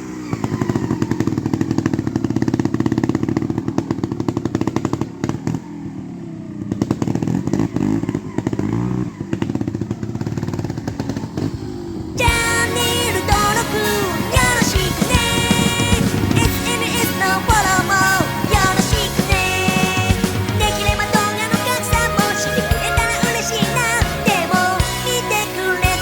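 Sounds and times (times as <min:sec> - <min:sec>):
motorcycle engine revving: 0:00.0 - 0:26.0
music: 0:12.3 - 0:26.0.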